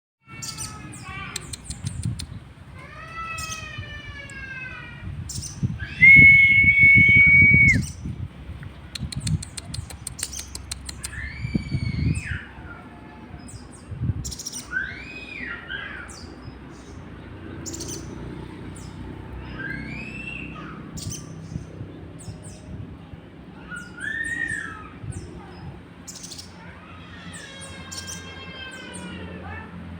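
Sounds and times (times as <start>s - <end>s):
songbird whistled calls: 5.3s - 8.0s, 14.2s - 16.3s, 19.5s - 21.6s, 23.7s - 25.3s.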